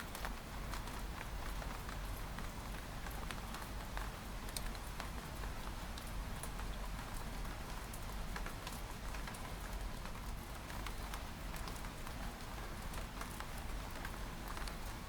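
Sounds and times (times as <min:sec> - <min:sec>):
rain on window glass: 0:00.1 - 0:15.0.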